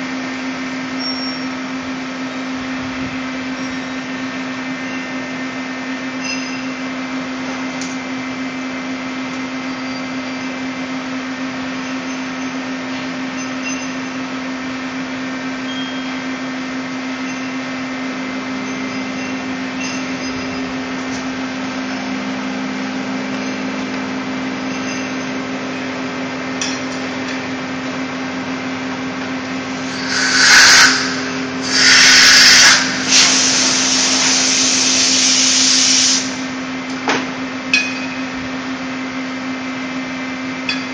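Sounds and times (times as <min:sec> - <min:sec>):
lathe machine hum: 0:28.0 - 0:36.7
loud hissing bursts: 0:29.8 - 0:36.6.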